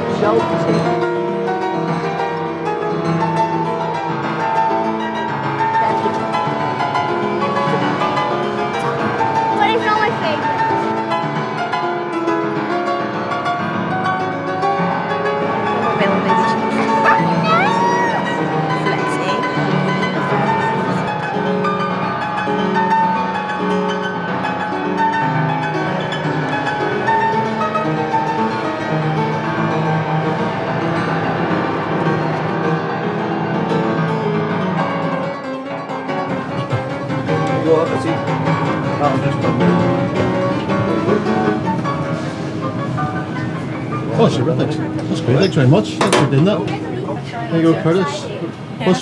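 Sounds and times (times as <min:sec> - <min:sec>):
piano playing: 0:05.4 - 0:12.2, 0:15.4 - 0:21.4, 0:25.8 - 0:32.5, 0:36.3 - 0:47.2.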